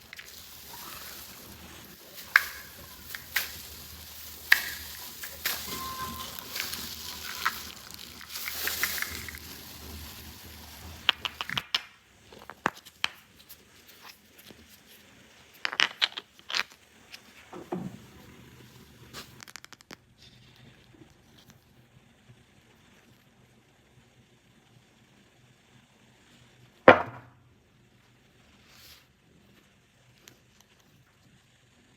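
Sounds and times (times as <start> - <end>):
plastic packaging crinkling: 0.0 - 16.8
plastic toy pieces clicking: 0.1 - 9.5.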